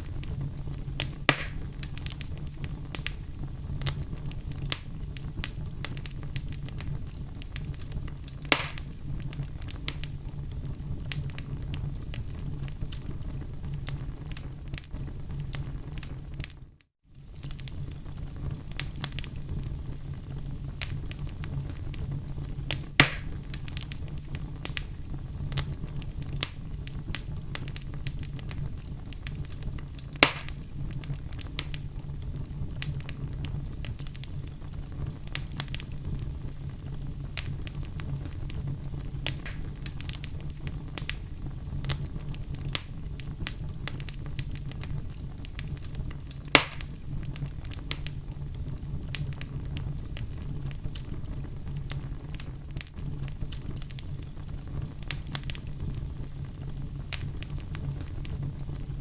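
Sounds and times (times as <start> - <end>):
fire crackling in a fireplace: 0.0 - 59.0
loud fire pops: 0.0 - 59.0.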